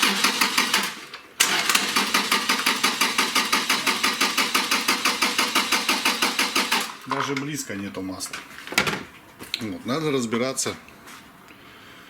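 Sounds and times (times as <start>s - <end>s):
engine cranking on starter motor: 0.0s - 7.1s.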